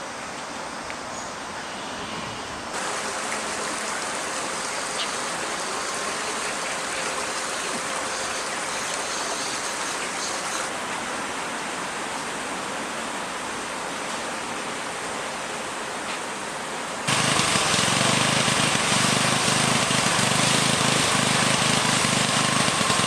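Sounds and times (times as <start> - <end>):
rushing water: 2.6 - 23.0.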